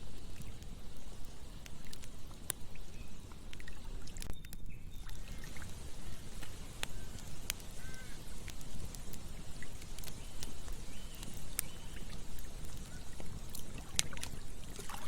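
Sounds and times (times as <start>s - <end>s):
campfire crackling and popping: 0.0s - 15.0s
river flowing: 5.1s - 15.0s.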